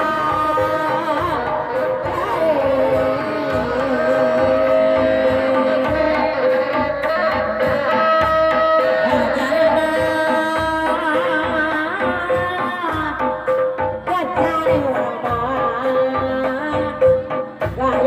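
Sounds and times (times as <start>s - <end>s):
shawm playing wavering melody: 0.0s - 12.4s
hand drum strokes: 0.0s - 15.9s.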